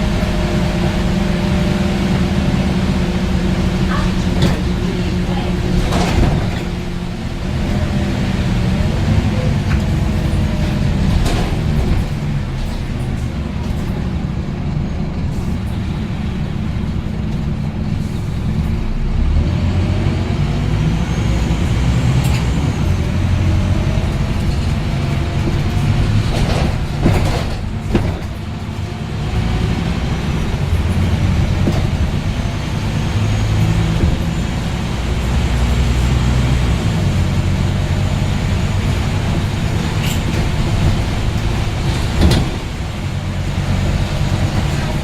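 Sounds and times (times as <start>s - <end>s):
bus engine running: 0.0s - 45.0s
sharp knocks and rattles: 24.2s - 28.9s.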